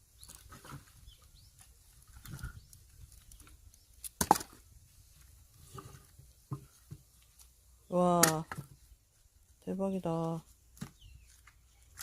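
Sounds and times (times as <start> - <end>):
log splitting crack: 2.0 - 4.7.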